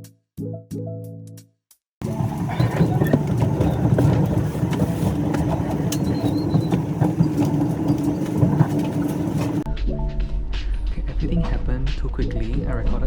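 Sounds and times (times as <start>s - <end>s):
constant hum: 2.0s - 9.7s
small rattles and clicks: 2.0s - 9.7s
train rumbling: 2.0s - 9.7s.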